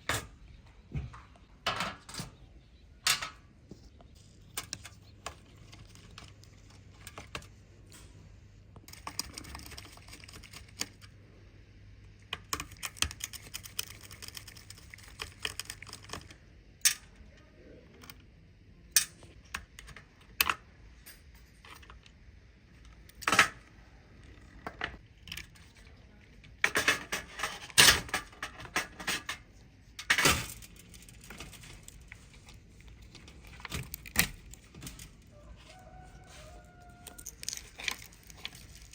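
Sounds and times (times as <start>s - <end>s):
hand tools clicking and scraping: 36.2s - 38.9s.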